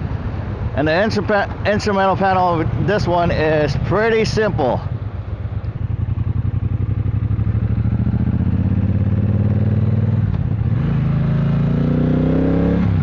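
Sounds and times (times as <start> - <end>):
motorcycle engine accelerating: 4.8 - 13.0.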